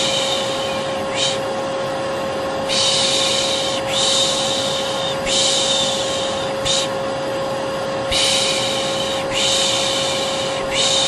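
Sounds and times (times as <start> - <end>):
person shushing: 0.0 - 1.5, 8.1 - 11.0
vacuum cleaner humming: 0.0 - 11.0.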